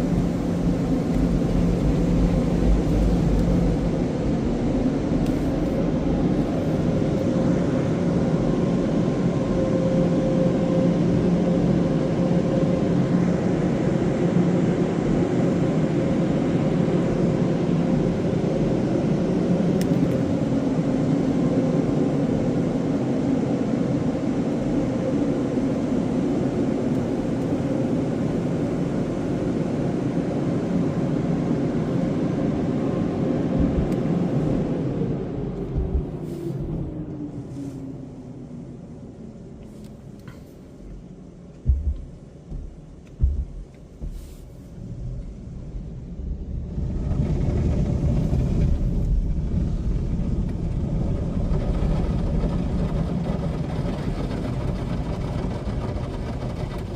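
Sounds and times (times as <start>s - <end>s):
car wash machinery hum: 0.0s - 56.9s.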